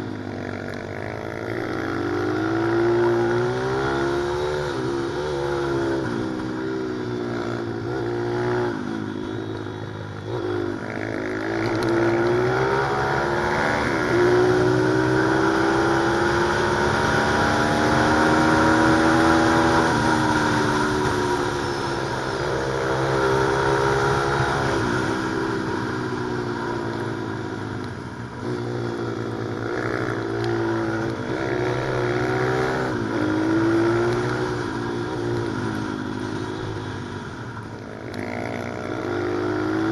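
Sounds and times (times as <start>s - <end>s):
pit bike engine revving: 10.3s - 25.9s.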